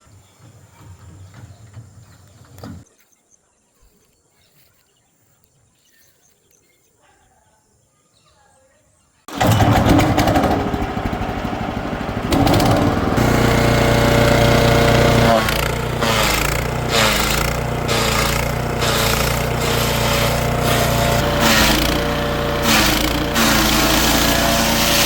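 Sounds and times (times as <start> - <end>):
woodchipper engine running: 9.3 - 25.0.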